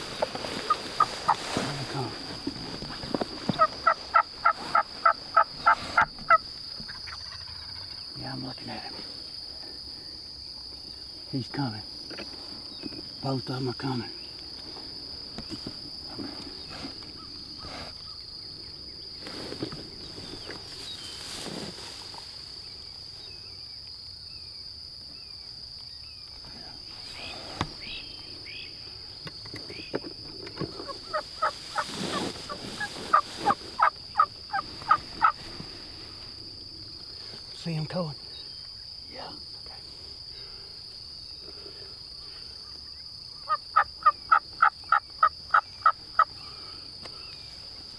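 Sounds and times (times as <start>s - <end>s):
high insect trill: 0.0s - 47.9s
turkey yelps: 3.5s - 8.0s, 30.8s - 35.4s.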